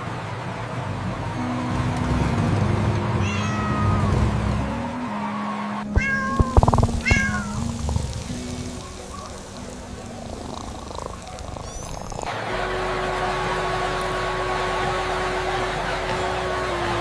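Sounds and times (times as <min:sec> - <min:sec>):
background music: 0:00.0 - 0:17.0
cat meowing: 0:03.2 - 0:04.2, 0:05.8 - 0:08.1, 0:10.5 - 0:12.3.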